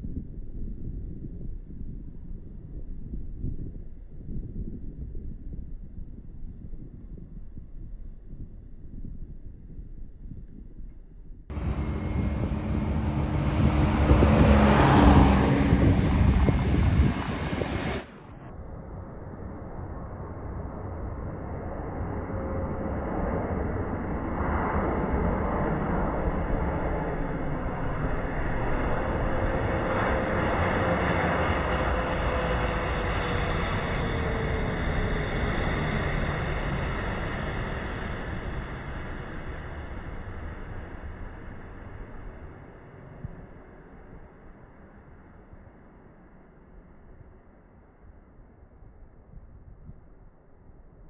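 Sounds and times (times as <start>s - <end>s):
jet engines roaring: 11.5s - 18.1s
jet airliner passing low: 11.5s - 18.2s, 20.0s - 44.0s.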